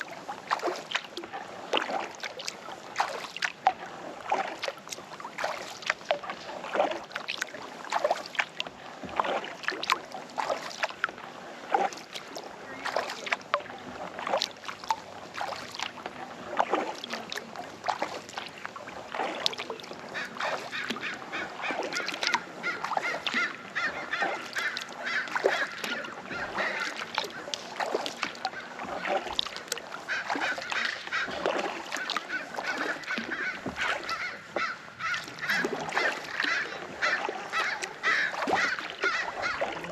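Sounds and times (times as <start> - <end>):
paddle splashing in water: 0.0 - 39.9
waterfowl calling: 19.2 - 39.9.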